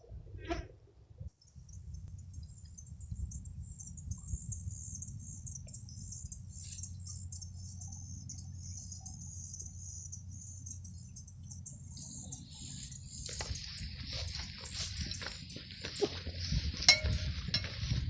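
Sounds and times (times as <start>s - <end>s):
insects trilling: 2.0s - 18.0s.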